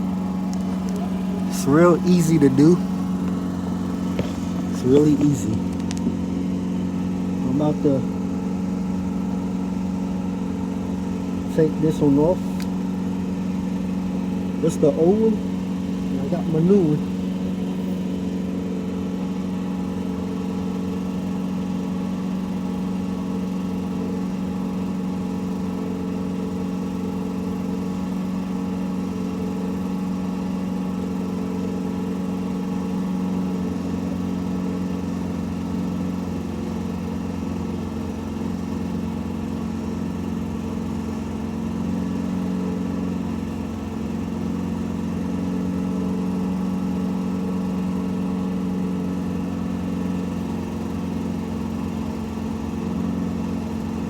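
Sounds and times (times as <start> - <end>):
engine humming steadily: 0.0 - 54.0.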